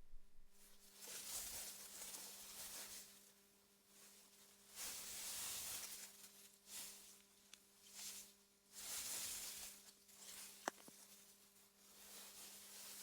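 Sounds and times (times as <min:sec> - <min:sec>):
faint low hum: 0:00.0 - 0:00.9.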